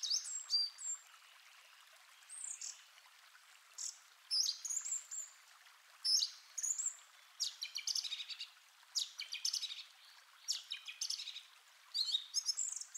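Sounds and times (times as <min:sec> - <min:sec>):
songbird singing trills: 0:06.1 - 0:12.9.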